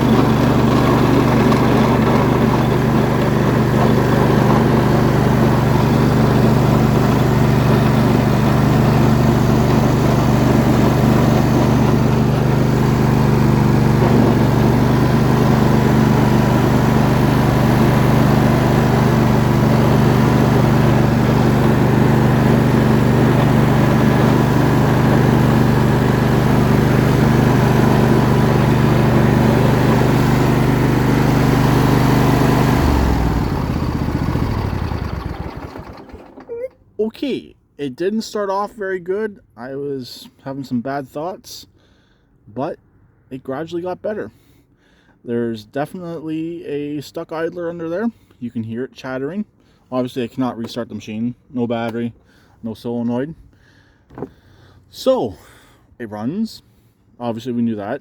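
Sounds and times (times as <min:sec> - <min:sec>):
lawn tractor engine running: 0:00.0 - 0:36.8.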